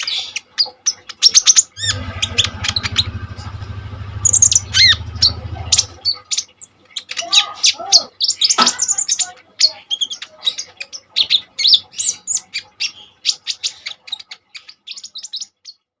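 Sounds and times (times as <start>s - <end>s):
sunbird chirping: 1.8s - 6.3s.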